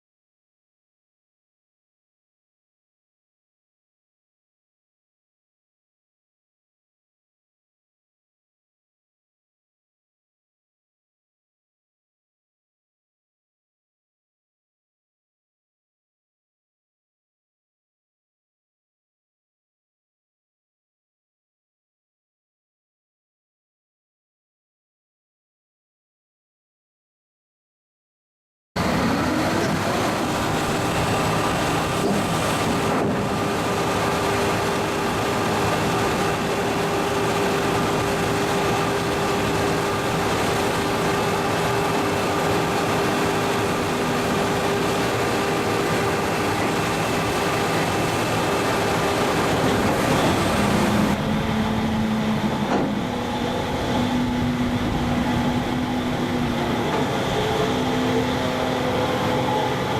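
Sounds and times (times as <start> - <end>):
continuous whine: 28.8 - 59.9
diesel machine drone: 28.8 - 59.9.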